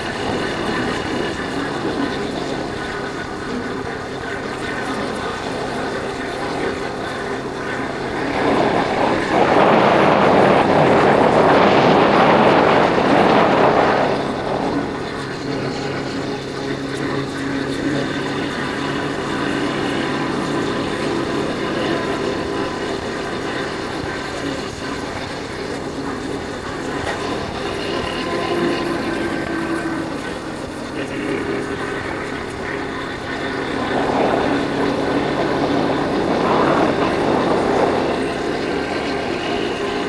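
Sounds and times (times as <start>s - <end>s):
loud rushing noise: 7.9s - 16.0s.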